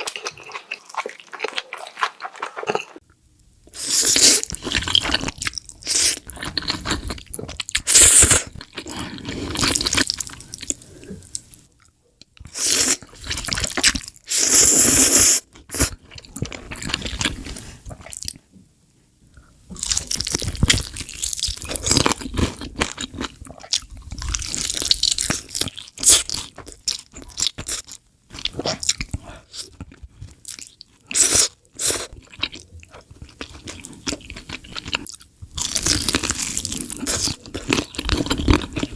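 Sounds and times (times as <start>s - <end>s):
crunchy chewing: 0.0s - 3.0s, 19.7s - 38.9s.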